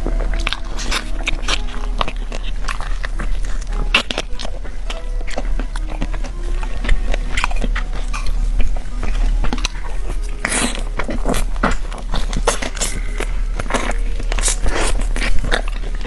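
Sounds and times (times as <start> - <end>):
crunchy chewing: 0.0 - 16.0
low electrical hum: 0.0 - 16.0.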